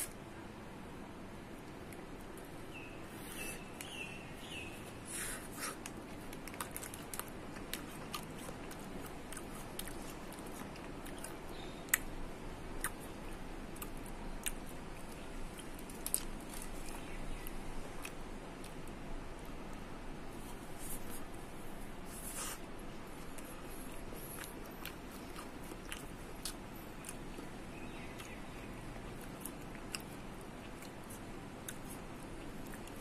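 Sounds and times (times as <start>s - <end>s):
biting and chewing ice pop: 5.3s - 12.2s.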